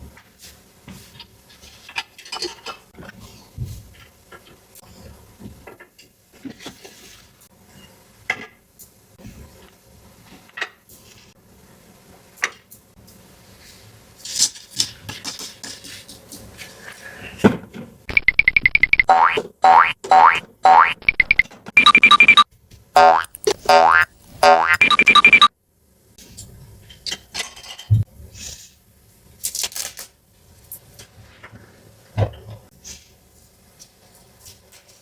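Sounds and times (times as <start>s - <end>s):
fast-pulsing tone: 18.1s - 22.4s, 23.0s - 25.5s.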